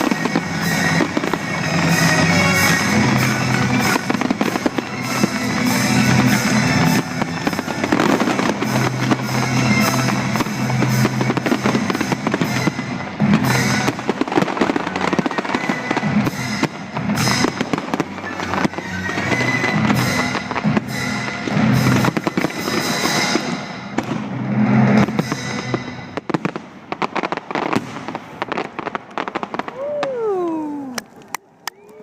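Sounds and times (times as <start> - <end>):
fireworks bursting and crackling: 0.0 - 32.0.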